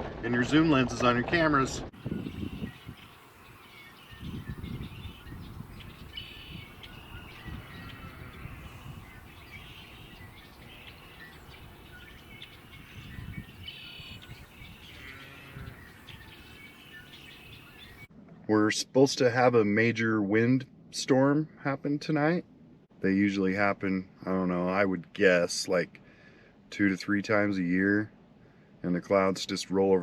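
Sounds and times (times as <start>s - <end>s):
low rumble: 0.0s - 15.0s
small birds chirping: 2.0s - 18.1s.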